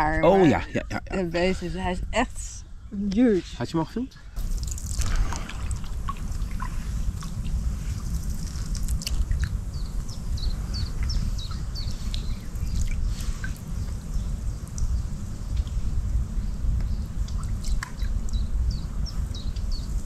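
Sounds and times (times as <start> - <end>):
steady low rumble: 0.0 - 20.0
water dripping and trickling: 4.4 - 16.2, 16.8 - 18.5
small birds chirping: 7.8 - 15.8, 16.4 - 20.0.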